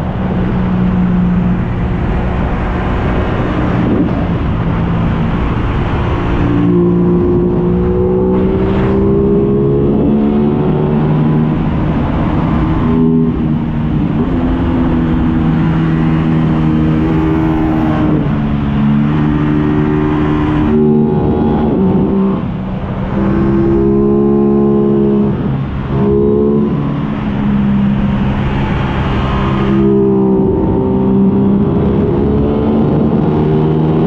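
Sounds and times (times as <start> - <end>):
motorcycle engine revving: 0.0 - 34.0
wind rush: 0.0 - 34.0.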